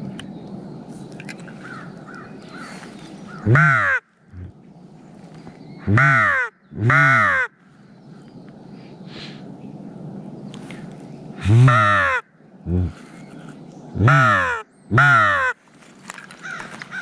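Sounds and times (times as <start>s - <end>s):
faint background crow caws: 1.5s - 4.5s, 5.9s - 7.9s, 11.4s - 17.0s
crow cawing close by: 1.6s - 4.5s, 5.9s - 7.6s, 11.4s - 12.3s, 14.0s - 15.6s, 16.4s - 17.0s.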